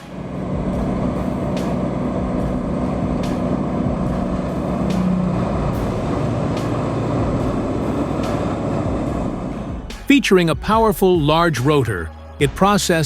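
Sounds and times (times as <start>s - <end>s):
wood chipper running: 0.0s - 10.0s.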